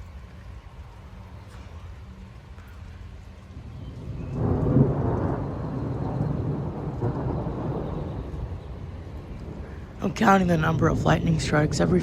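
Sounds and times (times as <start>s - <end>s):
rolling thunder: 3.4s - 12.0s.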